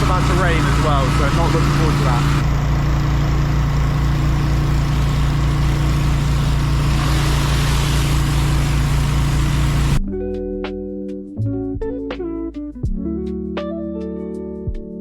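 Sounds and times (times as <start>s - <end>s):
pressure washer engine running: 0.0s - 10.0s
plucked guitar music: 10.0s - 15.0s.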